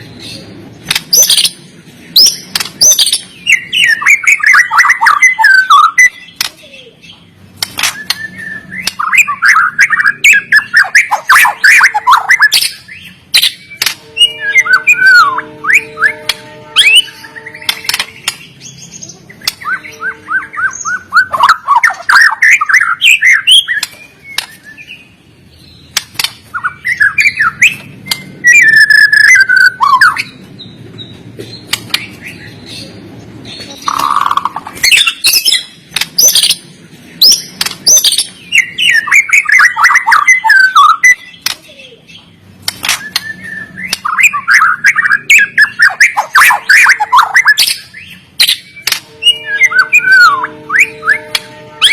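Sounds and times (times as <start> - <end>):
bird sharp clicking notes: 2.2 - 6.6, 7.6 - 12.4, 17.6 - 18.5, 25.9 - 28.4, 33.8 - 36.6, 42.6 - 47.8, 48.4 - 49.1
bird whistling and chattering: 2.2 - 7.2, 7.8 - 18.4, 19.0 - 25.0, 26.5 - 30.4, 33.6 - 36.6, 37.2 - 42.2, 42.8 - 51.3.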